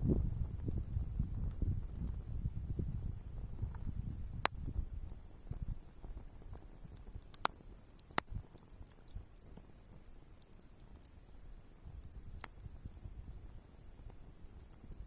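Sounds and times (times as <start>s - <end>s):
sharp pops of fire: 0.0s - 13.4s
campfire crackling: 0.0s - 15.0s
low rumble of flames: 0.0s - 15.0s.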